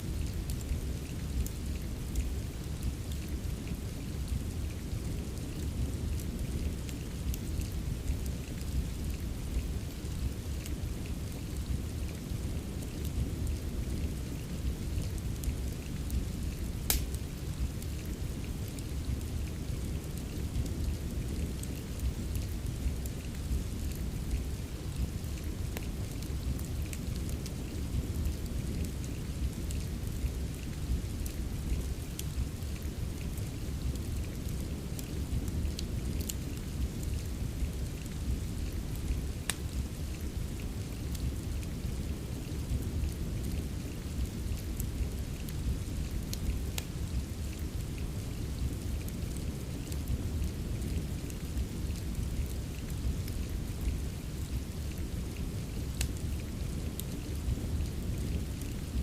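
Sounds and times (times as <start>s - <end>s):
rain hiss: 0.0s - 59.0s
fire crackling: 0.1s - 59.0s.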